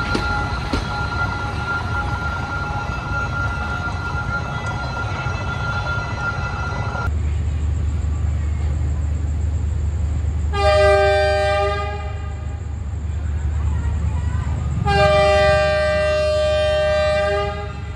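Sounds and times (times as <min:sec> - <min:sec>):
train whining tones: 0:00.0 - 0:08.1, 0:10.0 - 0:17.9
diesel locomotive idling rumble: 0:00.0 - 0:17.9
locomotive horn: 0:10.5 - 0:12.7, 0:14.8 - 0:17.9.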